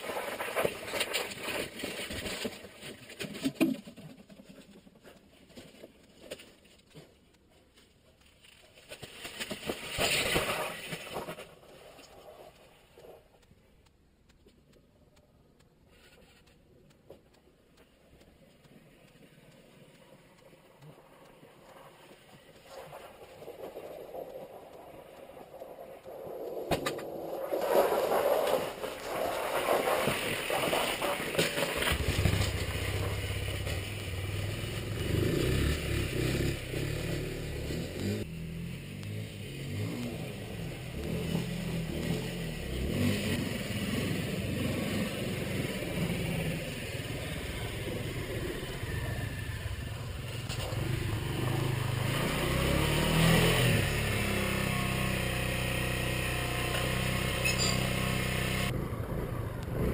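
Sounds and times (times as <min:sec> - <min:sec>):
motorcycle engine starting and running: 0:28.4 - 0:59.9.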